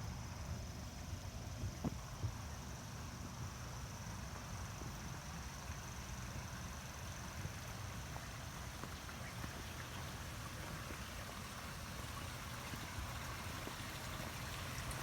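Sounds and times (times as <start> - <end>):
water trickling and gurgling: 6.4 - 15.0.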